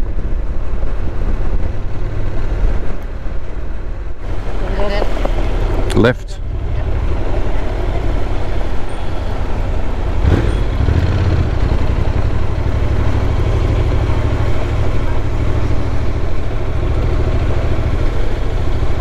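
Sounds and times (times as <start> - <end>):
motorcycle engine rumble: 0.0 - 19.0.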